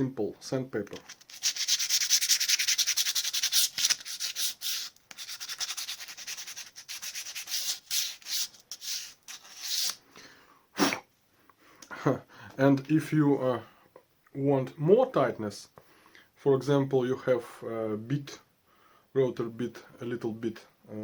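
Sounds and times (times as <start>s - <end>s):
sandpaper rubbing wood: 1.0s - 10.0s.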